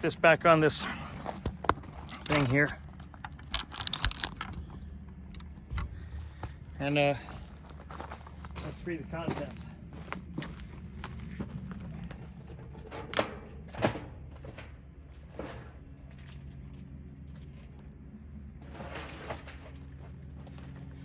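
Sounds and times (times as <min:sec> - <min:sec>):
faint steady hum: 0:00.0 - 0:21.0
handling noise: 0:01.1 - 0:16.2.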